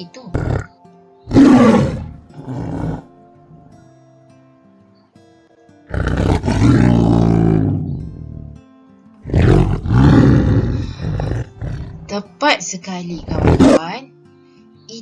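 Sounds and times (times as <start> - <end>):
soft background music: 0.0 - 15.0
tiger roaring: 0.3 - 3.7, 5.9 - 8.6, 9.3 - 12.1, 13.2 - 13.8.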